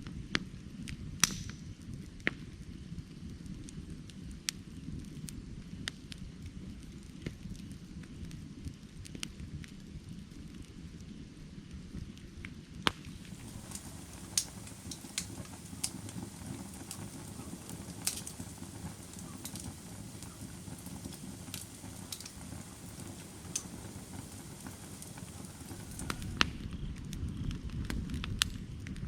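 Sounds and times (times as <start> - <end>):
firewood crackling and popping: 0.0 - 29.0
low rumble of flame: 0.0 - 29.0.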